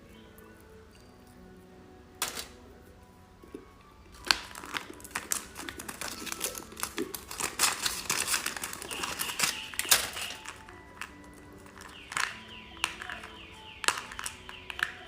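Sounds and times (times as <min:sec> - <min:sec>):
plastic wrapper crackling: 0:04.1 - 0:15.0.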